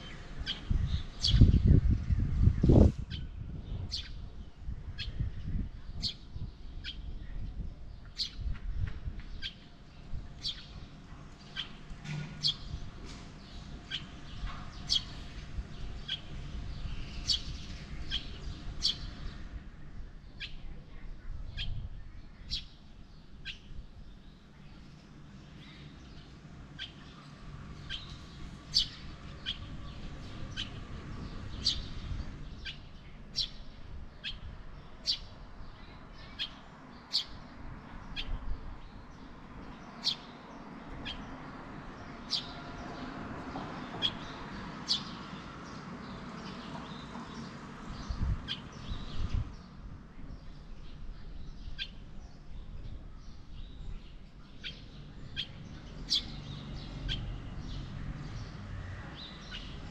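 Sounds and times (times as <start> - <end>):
bird chirping: 0.0 - 1.9, 21.6 - 41.5, 43.8 - 59.9.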